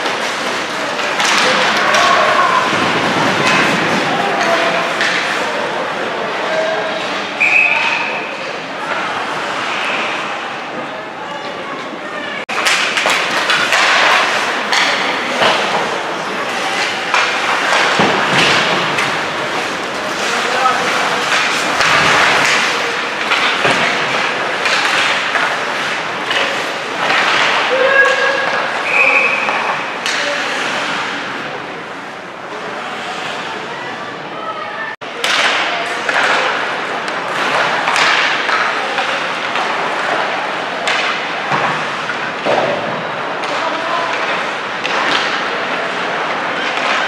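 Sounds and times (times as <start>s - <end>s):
skates scraping on ice: 0.0s - 7.4s, 12.5s - 34.0s
murmur of spectators: 0.0s - 47.0s.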